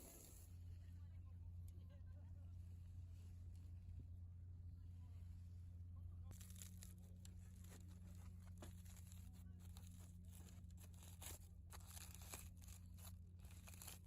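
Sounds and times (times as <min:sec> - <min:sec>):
charcoal fire crackling: 0:00.0 - 0:00.6, 0:06.3 - 0:14.0.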